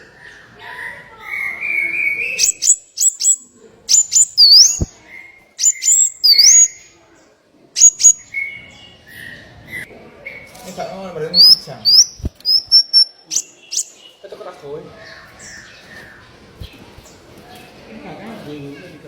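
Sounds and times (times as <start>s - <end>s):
songbird chipping: 1.3s - 7.0s, 7.8s - 8.7s, 10.2s - 14.3s
drawn-out bird notes: 1.4s - 7.0s
dipping whistled bird note: 5.6s - 6.8s, 11.4s - 13.9s.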